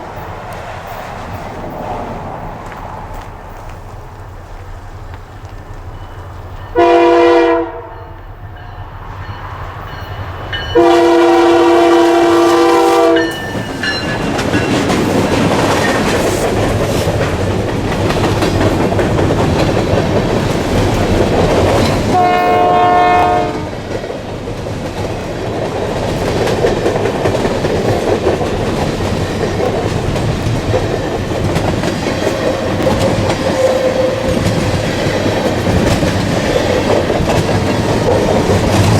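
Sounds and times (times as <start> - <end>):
train wheels on rail joints: 0.0 - 38.9
locomotive horn: 6.7 - 8.2, 10.7 - 13.5, 22.1 - 23.8.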